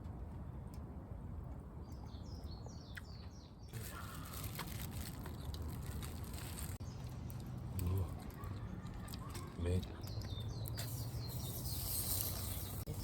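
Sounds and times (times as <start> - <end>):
songbird chirping: 1.8 - 4.1, 6.8 - 12.9.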